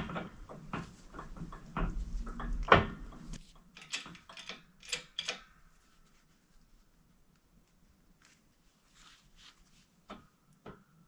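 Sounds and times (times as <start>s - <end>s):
metal tools clicking and knocking: 0.0s - 5.5s.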